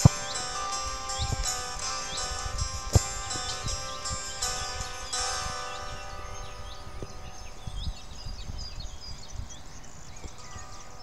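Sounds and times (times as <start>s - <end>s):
background music: 0.0s - 8.0s
songbirds chirping: 0.0s - 11.0s.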